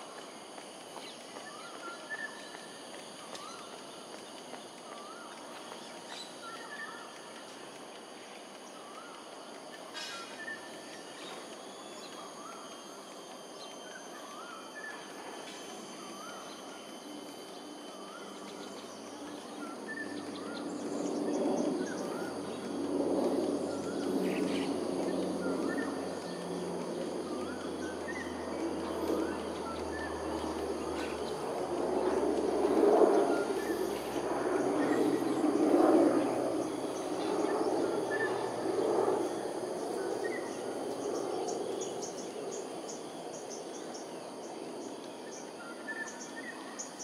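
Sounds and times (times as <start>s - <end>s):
low noise: 0.0s - 46.7s
birds chirping: 17.6s - 44.1s.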